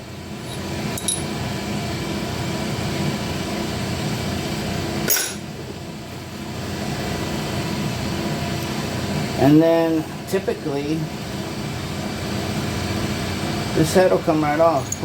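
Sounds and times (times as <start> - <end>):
fan motor hum: 0.0 - 15.0
sharp metallic clink: 0.5 - 1.3, 5.1 - 5.4, 14.7 - 15.0.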